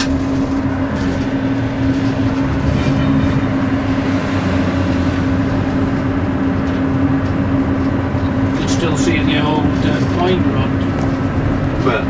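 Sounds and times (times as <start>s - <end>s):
diesel engine humming drone: 0.0s - 12.0s
wheels rumbling on track: 0.0s - 12.0s.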